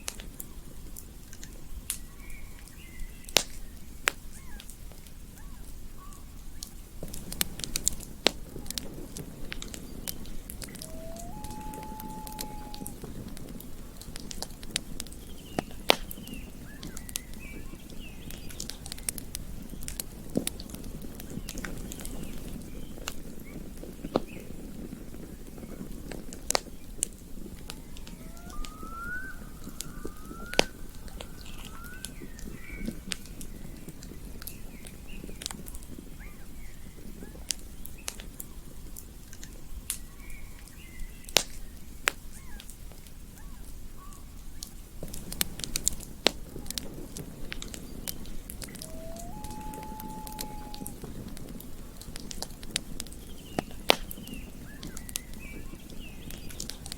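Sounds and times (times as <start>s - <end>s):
campfire crackling and popping: 0.0s - 56.9s
faint bird chirps: 10.6s - 13.0s, 27.7s - 33.0s, 48.6s - 51.0s
rising whistled notes: 10.6s - 13.0s, 27.8s - 32.8s, 48.6s - 51.0s.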